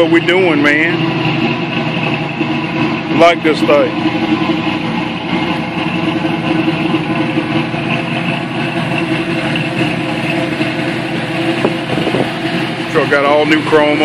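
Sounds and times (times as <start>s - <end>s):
pickup engine idling: 0.0s - 14.0s.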